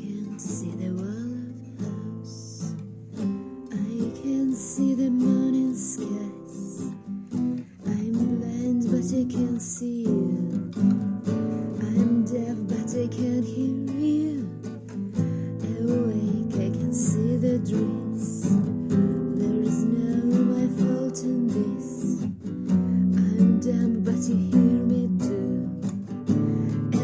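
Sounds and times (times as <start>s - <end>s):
acoustic guitar strumming: 0.0s - 27.0s.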